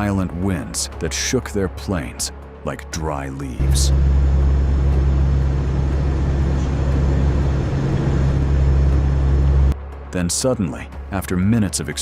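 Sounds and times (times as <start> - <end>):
aircraft engines droning: 3.2 - 10.1
wind rush and turbulence: 3.6 - 9.8.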